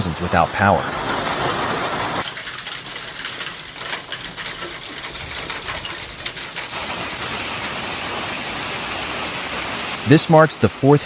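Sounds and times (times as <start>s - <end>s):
hiss of falling ice and rain: 0.2s - 11.0s
hailstones pelting hard surfaces: 2.2s - 10.1s.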